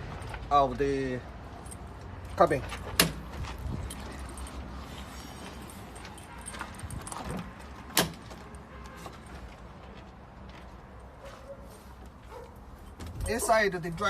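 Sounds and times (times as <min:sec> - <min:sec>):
truck cab door clattering: 0:02.8 - 0:03.4, 0:06.5 - 0:08.5.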